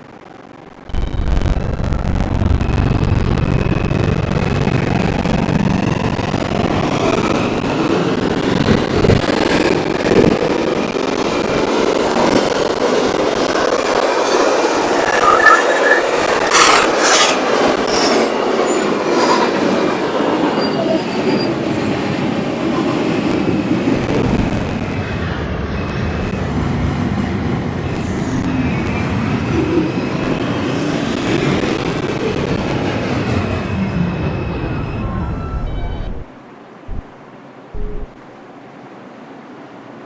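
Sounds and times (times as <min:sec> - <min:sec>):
subway train rumble: 0:00.0 - 0:40.0
train wheels squealing: 0:14.2 - 0:22.0, 0:33.2 - 0:36.2.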